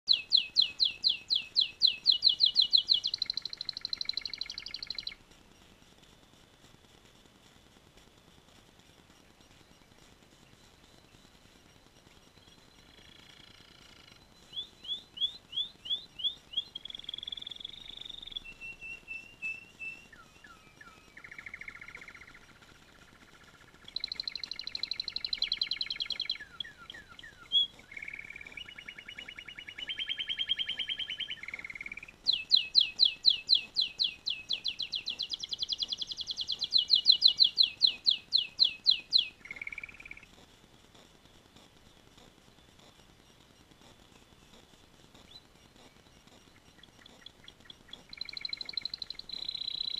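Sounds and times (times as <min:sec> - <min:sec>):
canary singing trills: 0:00.1 - 0:05.2, 0:09.2 - 0:49.9.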